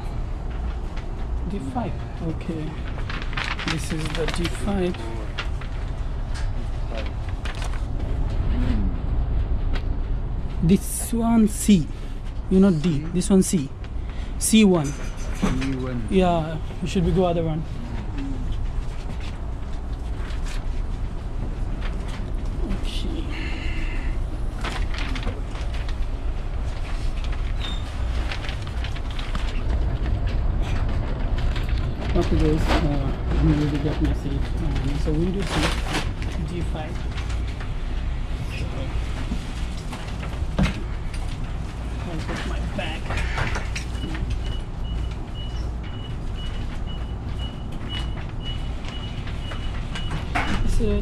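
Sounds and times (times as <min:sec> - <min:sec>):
low rumble inside train carriage: 0:00.0 - 0:51.0.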